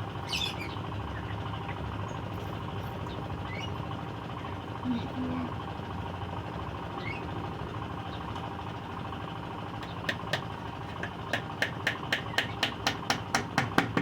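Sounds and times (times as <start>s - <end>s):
rapid knocks on wood: 9.8s - 14.0s.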